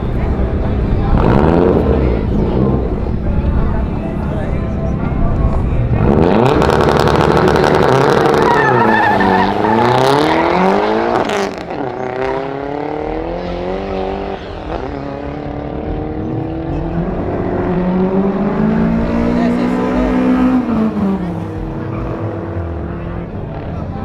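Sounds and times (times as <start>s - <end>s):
cars accelerating hard: 0.0s - 3.9s, 5.5s - 24.0s.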